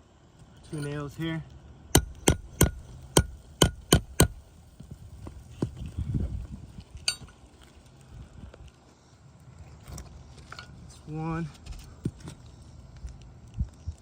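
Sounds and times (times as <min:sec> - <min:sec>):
hammer hitting metal tool: 0:02.0 - 0:04.4.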